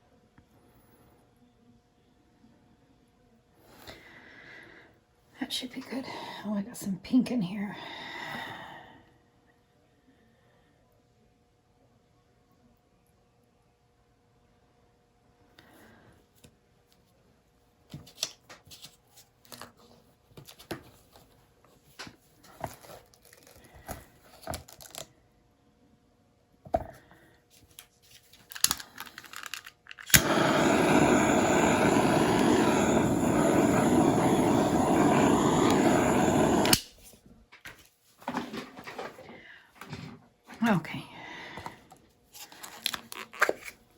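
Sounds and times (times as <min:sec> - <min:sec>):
small electric motor running: 0:30.1 - 0:36.8.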